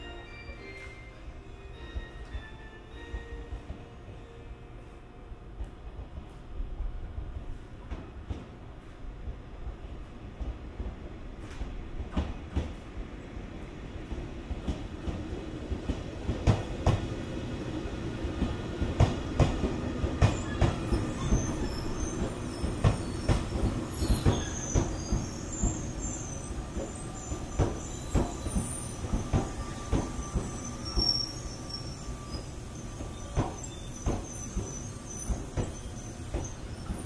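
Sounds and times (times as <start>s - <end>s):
low train rumble: 0.0s - 37.0s
train wheels clacking over joints: 18.4s - 31.4s, 32.3s - 37.0s
high wheel squeal: 20.3s - 37.0s.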